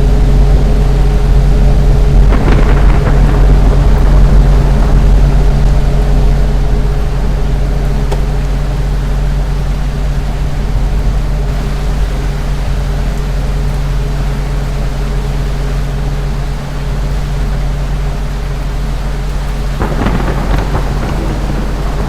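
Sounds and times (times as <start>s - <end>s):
ceiling fan motor hum: 0.0s - 22.0s.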